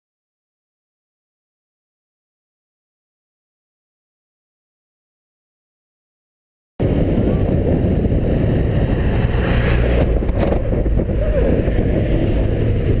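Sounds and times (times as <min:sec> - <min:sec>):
motorcycle engine running: 0:06.8 - 0:13.0
wind rushing over microphone: 0:06.8 - 0:13.0.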